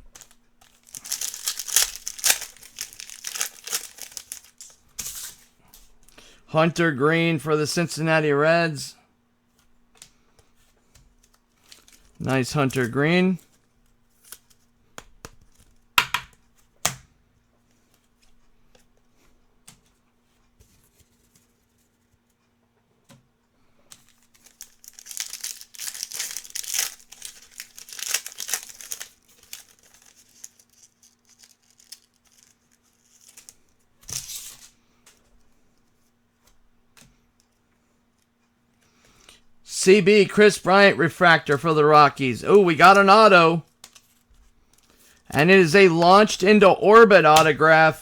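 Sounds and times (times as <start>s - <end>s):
wrapper rustling: 0.0s - 5.4s, 24.1s - 33.6s
foil pack tearing and crinkling: 0.2s - 5.4s, 24.2s - 33.6s.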